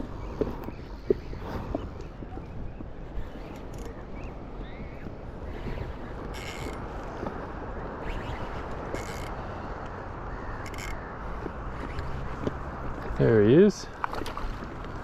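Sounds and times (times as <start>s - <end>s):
wind and water rumble: 0.0s - 15.0s
fishing reel winding: 10.6s - 11.0s.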